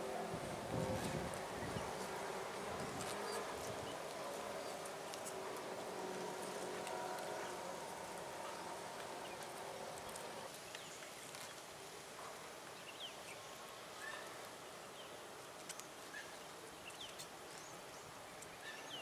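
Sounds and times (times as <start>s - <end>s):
faint steady hum: 0.0s - 19.0s
small birds chirping: 12.8s - 19.0s.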